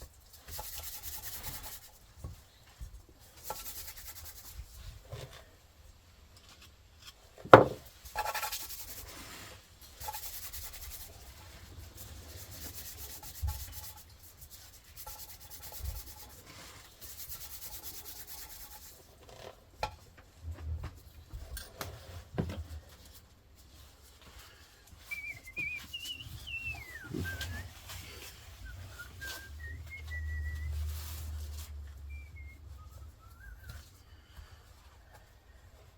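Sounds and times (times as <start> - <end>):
hand rubbing on hard surface: 0.4 - 2.1, 3.3 - 5.0, 7.6 - 19.1, 25.0 - 34.0
sharp knocks: 7.5 - 7.9.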